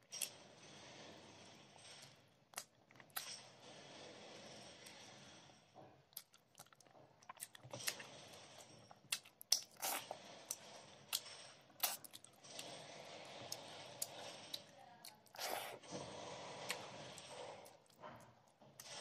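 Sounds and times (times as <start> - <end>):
wet chewing with mouth smacks: 6.1 - 8.1, 11.8 - 12.4.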